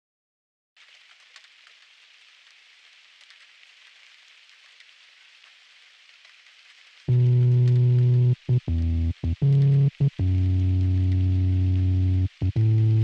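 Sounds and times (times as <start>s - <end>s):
rain hissing: 0.8s - 13.0s
raindrop ticks: 0.8s - 13.0s.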